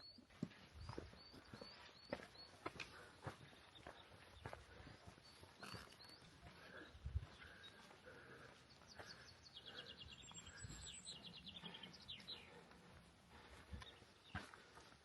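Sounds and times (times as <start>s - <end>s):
faint songbird trills: 0.0s - 7.9s.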